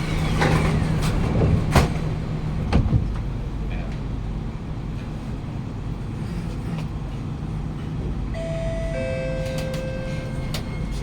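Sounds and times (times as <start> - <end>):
train carriage rumble: 0.0 - 11.0
two-note falling chime: 8.4 - 11.0.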